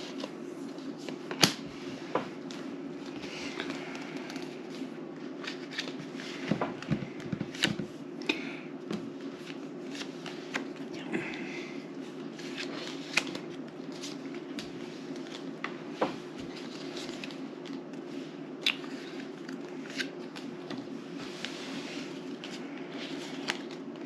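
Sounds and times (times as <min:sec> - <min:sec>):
low background hum: 0:00.0 - 0:24.0
playing cards shuffling: 0:02.3 - 0:07.9, 0:09.1 - 0:10.9, 0:12.2 - 0:23.8.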